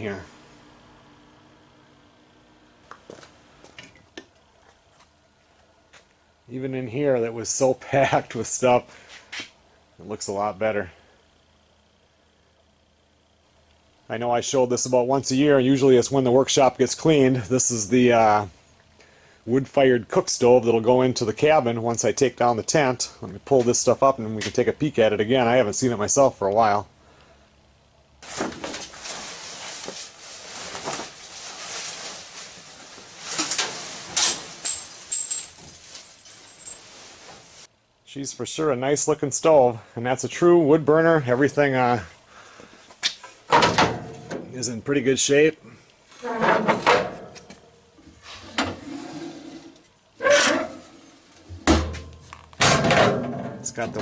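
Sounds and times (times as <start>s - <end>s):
rustling and shuffling: 28.2s - 37.7s
metal stove parts scraping and clunking: 33.3s - 35.6s.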